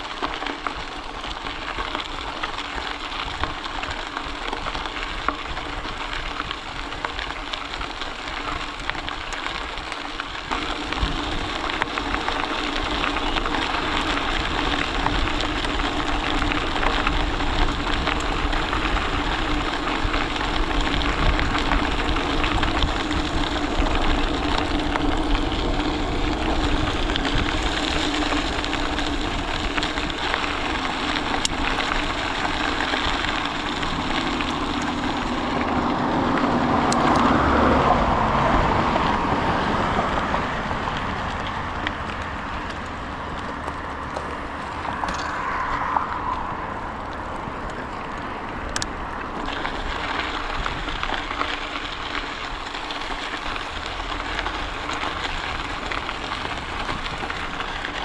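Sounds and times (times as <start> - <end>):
bicycle tyres rolling on trail: 0.0 - 58.0
wind on microphone: 10.7 - 40.8.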